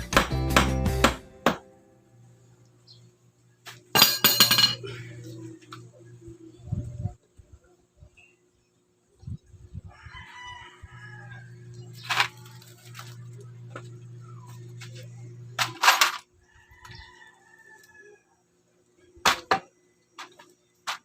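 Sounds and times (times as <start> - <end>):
steady low hum: 1.0 - 9.9, 10.8 - 16.1
rooster crowing: 9.8 - 12.0, 16.4 - 18.5.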